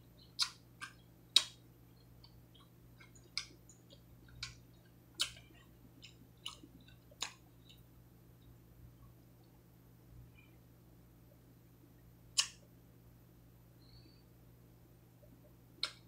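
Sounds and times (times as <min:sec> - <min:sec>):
person chewing food: 0:00.2 - 0:07.9.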